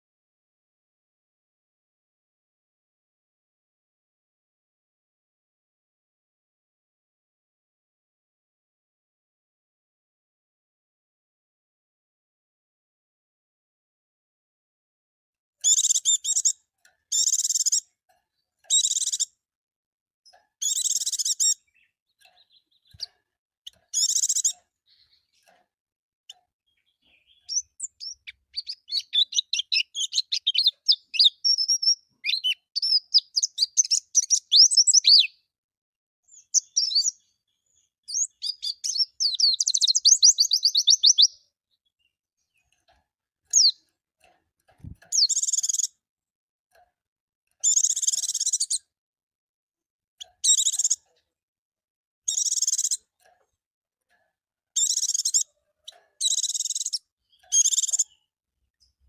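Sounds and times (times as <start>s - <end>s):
bird twittering and trilling: 15.6s - 19.4s, 20.3s - 25.6s, 26.3s - 35.5s, 36.3s - 43.9s, 44.7s - 46.0s, 47.6s - 48.9s, 50.2s - 51.2s, 52.3s - 53.2s, 54.8s - 59.0s.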